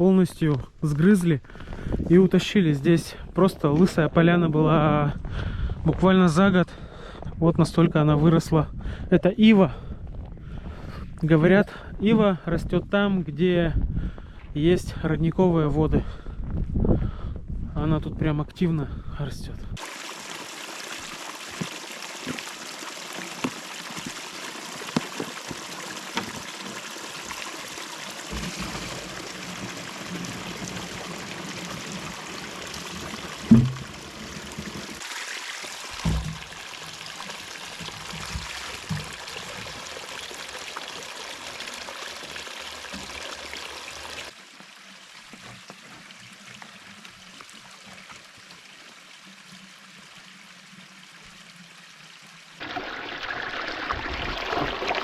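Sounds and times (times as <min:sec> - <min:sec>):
small stream running: 0:19.8 - 0:55.0
dull thumps: 0:33.4 - 0:34.0.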